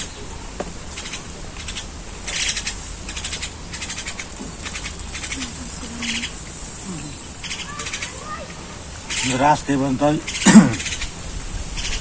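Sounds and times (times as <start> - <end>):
faint low hum: 0.0 - 9.4
birds chattering: 0.0 - 12.0.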